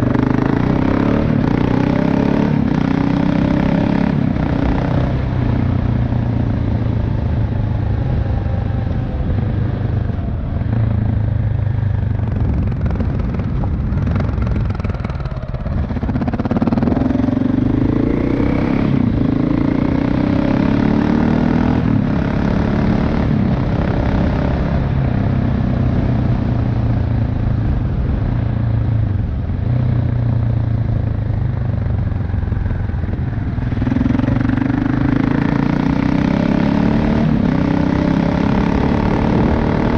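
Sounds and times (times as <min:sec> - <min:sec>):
motorcycle engine and exhaust: 0:00.0 - 0:39.9.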